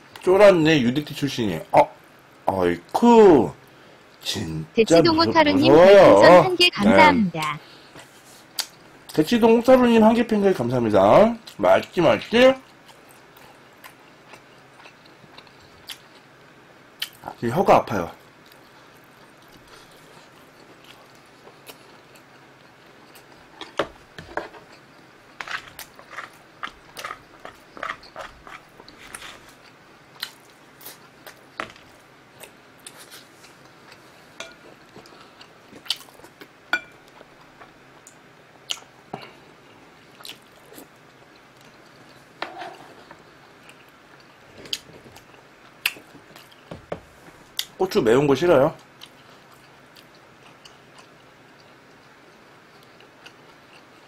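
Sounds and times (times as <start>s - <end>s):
person chewing food: 12.6s - 16.4s, 18.3s - 42.3s, 43.0s - 47.7s, 48.8s - 54.0s.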